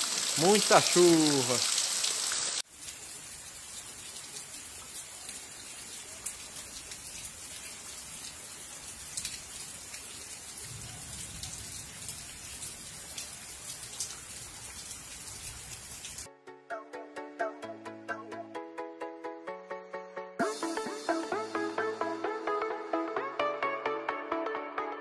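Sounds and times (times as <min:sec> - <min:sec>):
rain falling steadily: 0:00.0 - 0:16.3.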